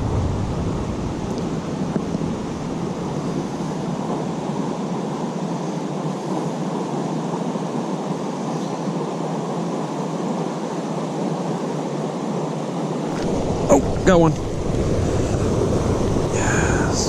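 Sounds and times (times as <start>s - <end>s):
river water rushing: 12.9s - 17.0s.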